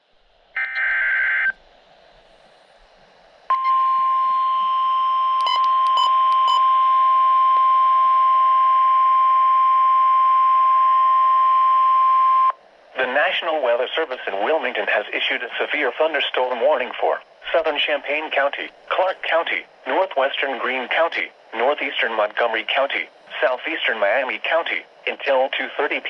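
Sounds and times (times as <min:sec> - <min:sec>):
short beeps: 0:03.5 - 0:07.2
steady warning alarm tone: 0:03.5 - 0:12.5.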